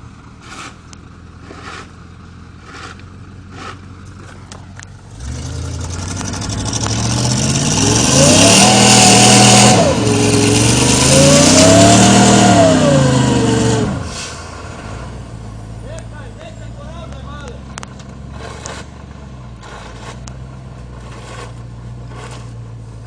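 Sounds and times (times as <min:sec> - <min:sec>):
engine revving under load: 0:05.1 - 0:15.3, 0:16.9 - 0:22.9.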